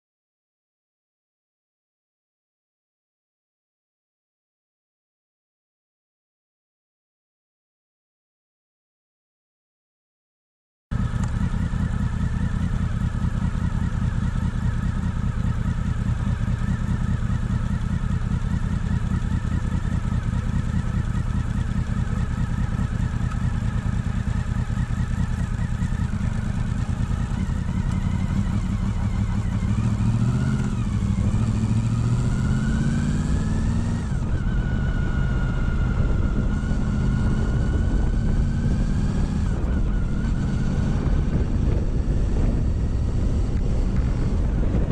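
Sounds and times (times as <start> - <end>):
motorcycle engine revving: 10.9 - 44.9.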